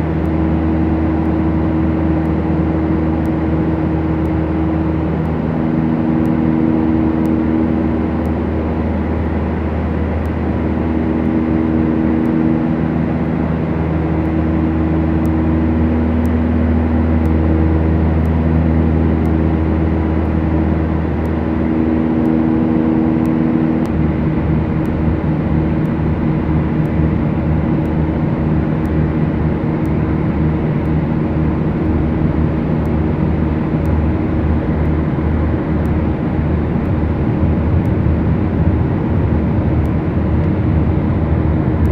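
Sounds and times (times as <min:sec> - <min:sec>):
aircraft propeller engines droning: 0:00.0 - 0:41.9.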